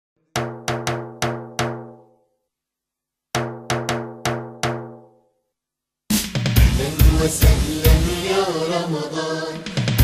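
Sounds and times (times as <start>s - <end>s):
pitched drum hits ringing: 0.4s - 2.2s, 3.4s - 5.2s.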